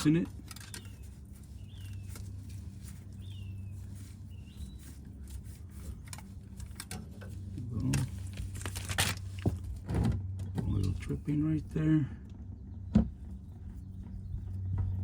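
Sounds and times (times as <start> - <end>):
steady low hum: 0.0 - 15.0
bird chirping: 0.6 - 6.5.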